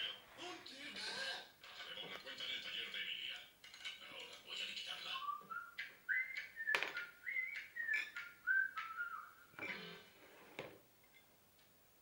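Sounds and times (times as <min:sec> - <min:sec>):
whistled tune: 0:05.2 - 0:09.5.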